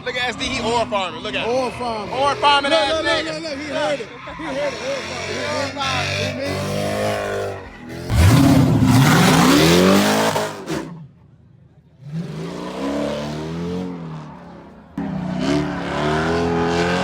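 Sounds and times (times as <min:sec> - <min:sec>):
car engine revving hard: 0:04.4 - 0:11.0, 0:12.0 - 0:17.0.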